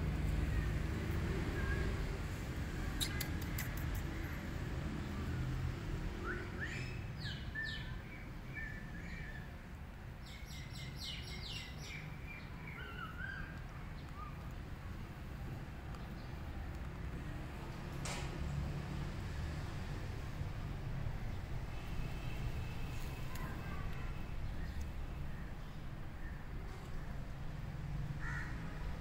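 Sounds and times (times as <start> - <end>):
small birds chirping: 2.8 - 4.4, 6.3 - 9.5, 10.2 - 17.1, 21.2 - 27.2.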